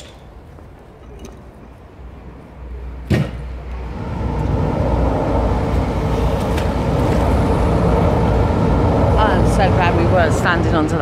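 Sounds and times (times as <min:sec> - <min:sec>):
train rumbling over a bridge: 0:02.9 - 0:11.0.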